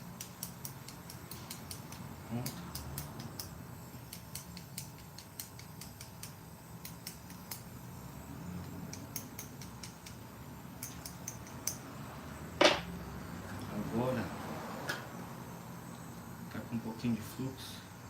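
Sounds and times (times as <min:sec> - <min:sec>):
hand tools clicking: 0:00.2 - 0:07.6.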